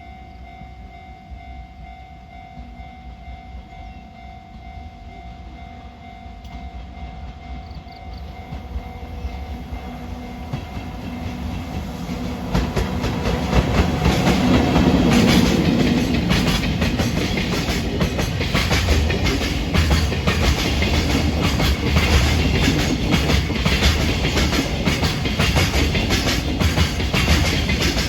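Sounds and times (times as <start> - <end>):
freight train passing: 0.0 - 28.0
train wheels clacking on rail joints: 6.4 - 28.0.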